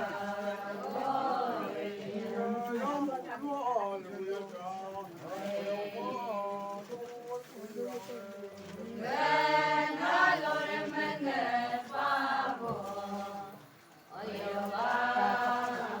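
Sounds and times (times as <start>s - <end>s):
group chanting: 0.0s - 2.7s, 8.8s - 16.0s.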